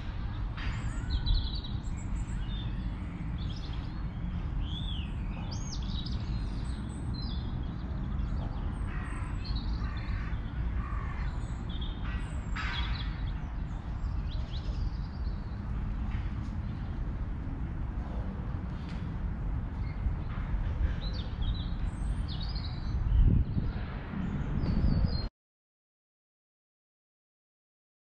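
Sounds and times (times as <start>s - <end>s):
low outdoor rumble: 13.2s - 25.3s.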